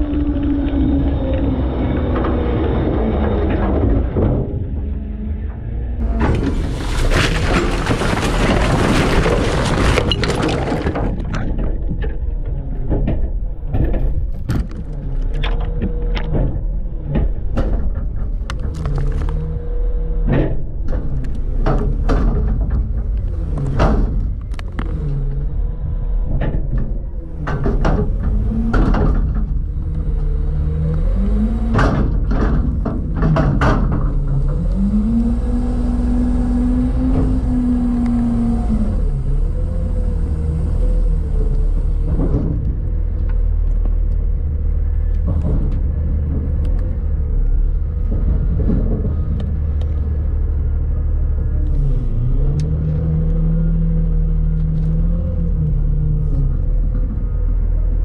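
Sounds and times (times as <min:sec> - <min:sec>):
dense crashing rush: 0:06.0 - 0:12.1
garbage truck engine revving: 0:21.0 - 0:58.0.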